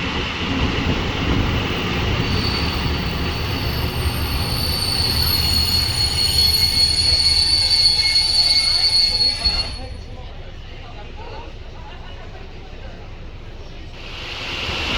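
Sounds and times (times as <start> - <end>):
train rolling rumble: 0.0 - 14.9
wheel squeal: 2.1 - 10.0.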